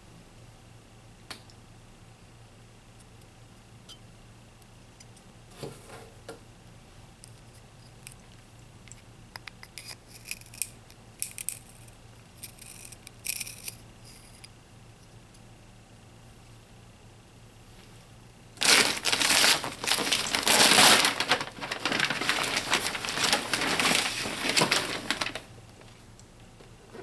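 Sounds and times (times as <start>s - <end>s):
packaging rustling: 18.6s - 26.0s.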